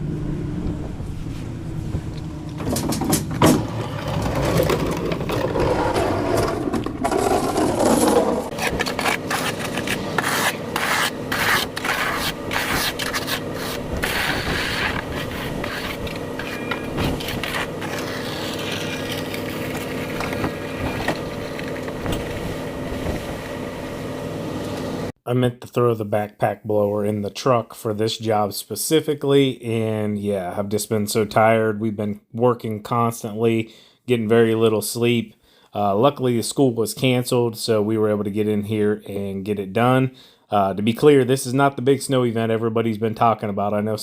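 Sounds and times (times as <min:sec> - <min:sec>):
steady engine hum: 0:00.0 - 0:05.4, 0:06.4 - 0:25.1
shovel scraping snow off pavement: 0:07.2 - 0:21.7.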